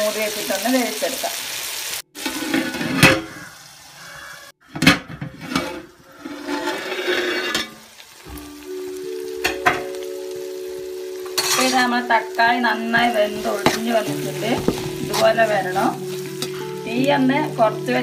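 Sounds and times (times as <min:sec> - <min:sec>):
food sizzling in oil: 0:00.0 - 0:04.4, 0:06.0 - 0:18.0
background music held notes: 0:08.2 - 0:18.0
metal pot lid knocking: 0:14.6 - 0:15.3.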